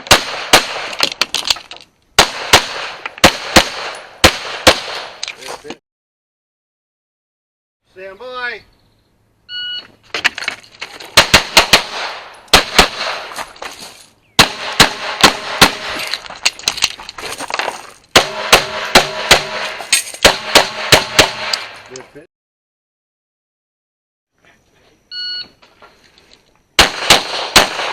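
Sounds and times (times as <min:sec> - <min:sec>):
rapid pistol shots: 0:00.0 - 0:01.0, 0:02.2 - 0:05.2, 0:11.2 - 0:13.3, 0:14.4 - 0:16.0, 0:18.2 - 0:21.8, 0:26.8 - 0:27.9
electronic timer beep: 0:09.5 - 0:09.9, 0:25.1 - 0:25.5.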